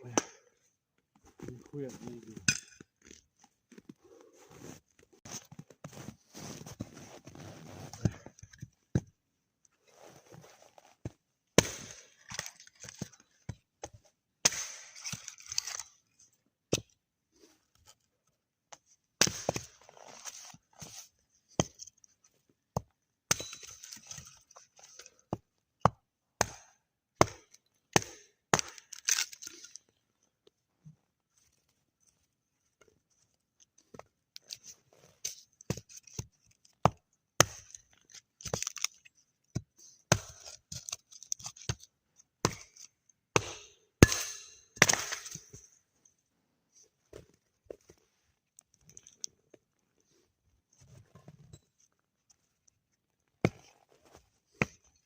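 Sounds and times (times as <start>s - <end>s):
wood chopping cracks and knocks: 11.6s - 13.1s, 14.4s - 15.9s, 26.4s - 29.5s, 40.1s - 41.8s, 43.3s - 45.6s.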